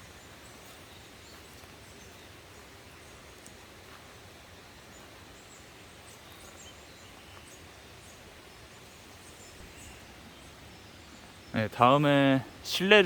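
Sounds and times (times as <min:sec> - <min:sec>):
faint outdoor background noise: 0:00.0 - 0:13.0
high faint chirps: 0:04.8 - 0:13.0.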